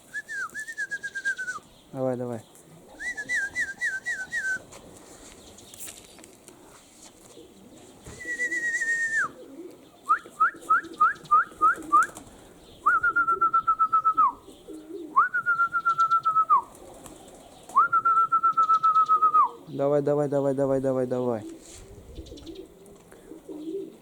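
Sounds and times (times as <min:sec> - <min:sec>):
pigeons cooing: 0:00.0 - 0:24.0
person whistling loudly: 0:00.1 - 0:01.6, 0:03.0 - 0:04.6, 0:08.2 - 0:09.4, 0:10.1 - 0:12.2, 0:12.8 - 0:14.4, 0:15.2 - 0:16.7, 0:17.8 - 0:19.5.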